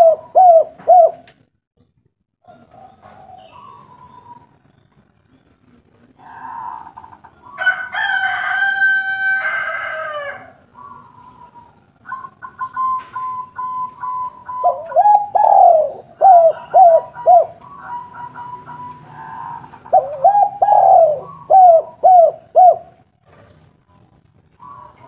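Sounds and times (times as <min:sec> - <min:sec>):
faint bird calls: 0:02.5 - 0:07.7, 0:10.7 - 0:25.0
rooster crowing: 0:06.3 - 0:10.6, 0:16.3 - 0:19.8.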